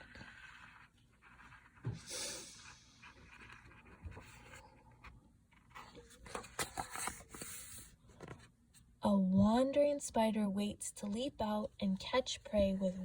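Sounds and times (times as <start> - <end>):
paper pages rustling: 5.5 - 8.5.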